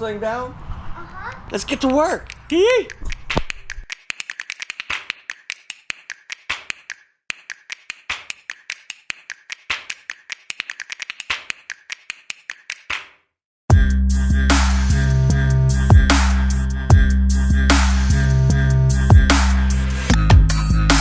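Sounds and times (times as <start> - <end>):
hand tool clicking: 1.3 - 13.1.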